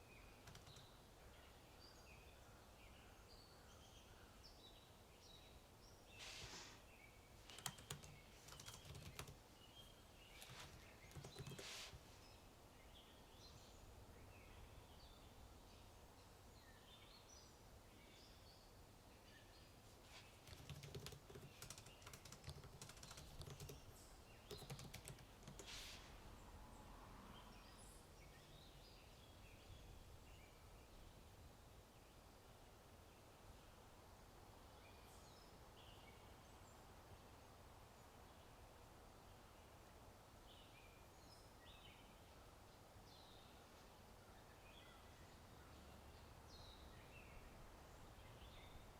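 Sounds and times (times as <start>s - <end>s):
computer keyboard typing: 0.4s - 0.9s, 7.5s - 9.4s, 10.4s - 11.8s, 20.4s - 25.7s.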